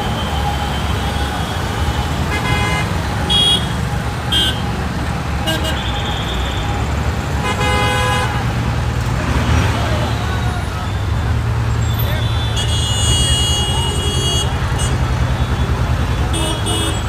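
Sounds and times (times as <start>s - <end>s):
car horns tooting: 0.0s - 4.8s, 5.4s - 17.0s
busy road traffic: 0.0s - 17.0s.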